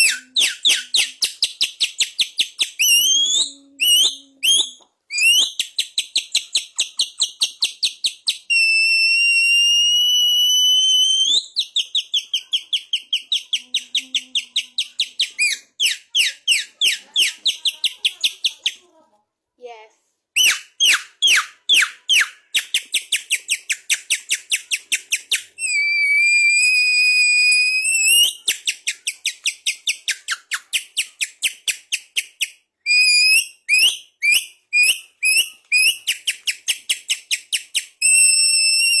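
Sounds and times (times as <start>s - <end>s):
songbird whistled song: 0.0s - 8.7s, 27.8s - 39.0s.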